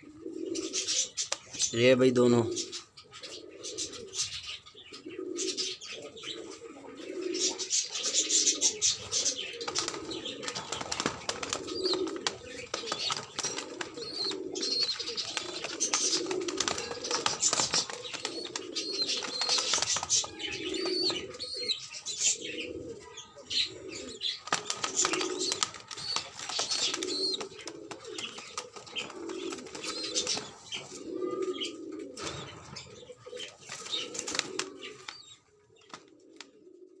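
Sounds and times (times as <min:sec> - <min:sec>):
pigeons cooing: 0:00.0 - 0:37.0
wing flaps: 0:24.4 - 0:30.5.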